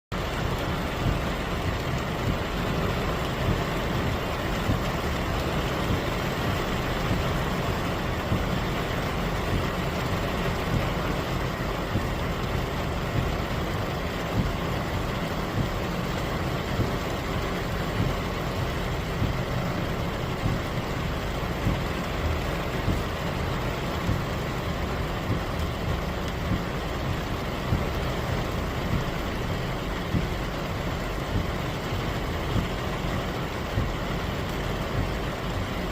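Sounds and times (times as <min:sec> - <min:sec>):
heavy rain pouring: 0:00.1 - 0:35.9.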